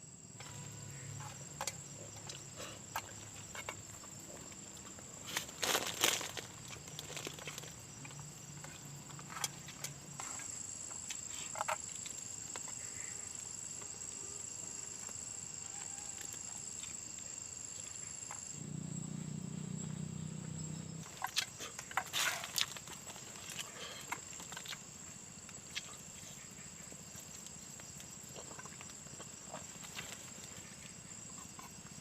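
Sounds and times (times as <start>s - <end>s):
insect trilling: 0.0s - 32.0s.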